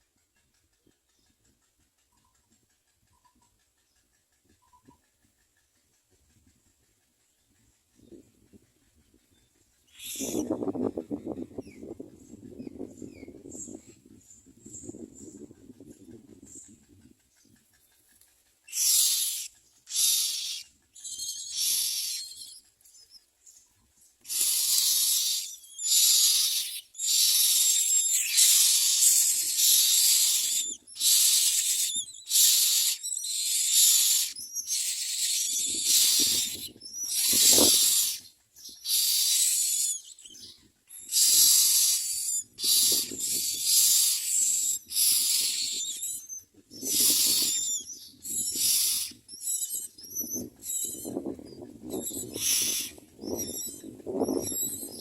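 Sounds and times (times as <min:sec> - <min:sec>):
nestlings begging with hissing rasps: 0:09.9 - 0:10.7, 0:18.7 - 0:23.2, 0:24.2 - 0:55.0.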